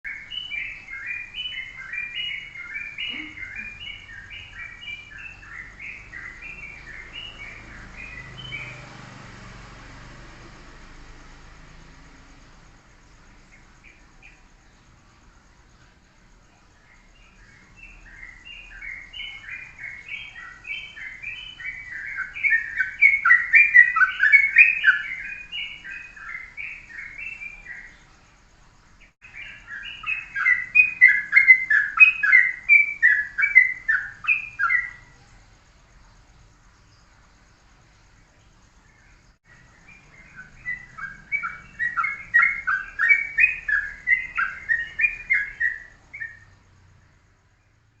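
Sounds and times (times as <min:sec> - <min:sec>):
bird chattering song: 0:00.0 - 0:09.0, 0:16.3 - 0:28.4, 0:29.0 - 0:35.3, 0:39.0 - 0:46.6.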